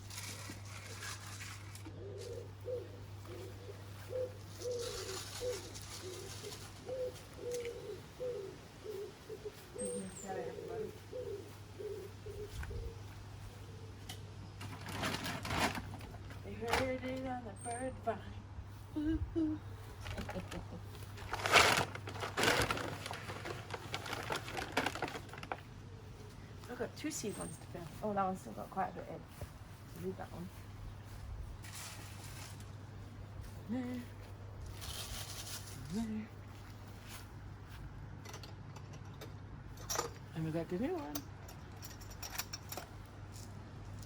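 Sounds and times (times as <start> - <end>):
bird seed packaging rustling: 0.0 - 7.9, 14.6 - 17.2, 19.8 - 26.3, 27.1 - 37.4
constant low hum: 0.0 - 44.0
pigeon cooing: 1.8 - 14.1.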